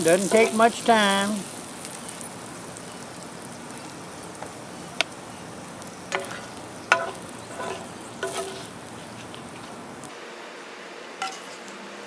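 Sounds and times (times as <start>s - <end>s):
food sizzling: 0.0s - 12.0s
metal utensil knocking on pan: 6.1s - 8.6s.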